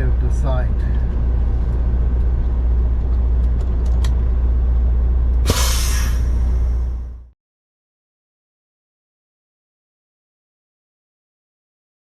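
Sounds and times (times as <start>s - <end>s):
diesel engine rumbling: 0.0s - 7.4s
air brakes hissing: 5.4s - 7.0s.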